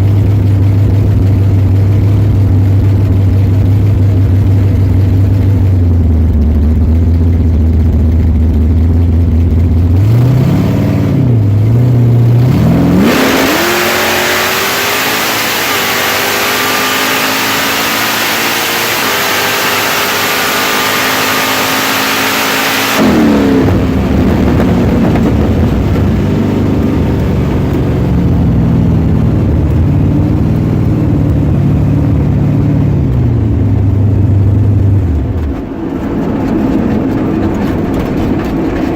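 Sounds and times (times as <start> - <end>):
supercharged car engine revving: 9.7 - 38.9.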